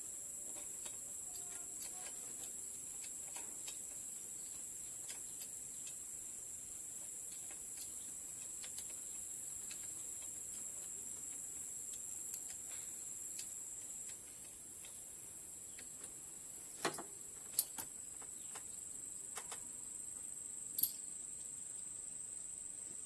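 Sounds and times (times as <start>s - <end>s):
high-pitched insect drone: 0.0s - 3.0s.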